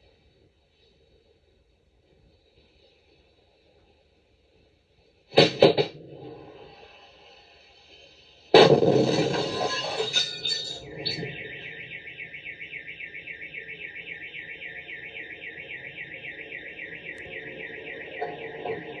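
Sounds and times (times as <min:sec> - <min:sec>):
electronic alarm siren warbling: 0:09.6 - 0:19.0.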